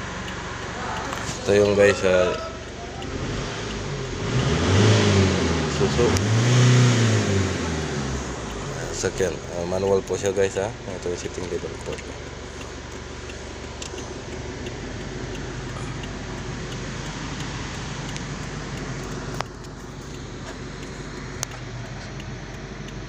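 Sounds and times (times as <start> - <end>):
diesel engine idling: 0.0 - 23.0
light clicks: 8.4 - 23.0.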